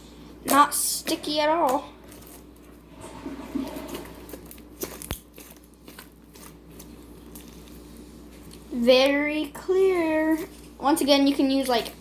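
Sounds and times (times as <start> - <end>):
slime popping and crackling: 4.4 - 7.8.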